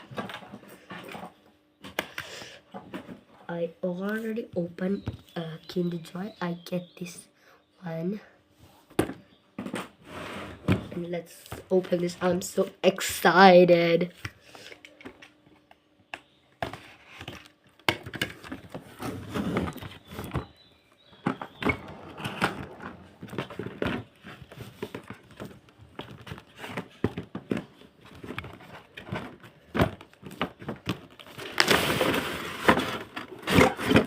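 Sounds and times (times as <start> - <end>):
plastic and cardboard rustling: 16.6 - 34.0.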